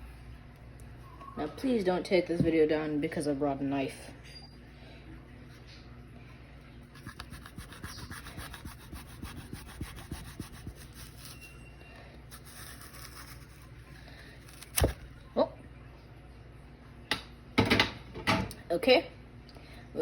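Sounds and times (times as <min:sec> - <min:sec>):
knife sawing through apple: 0:07.0 - 0:11.5, 0:12.3 - 0:13.8.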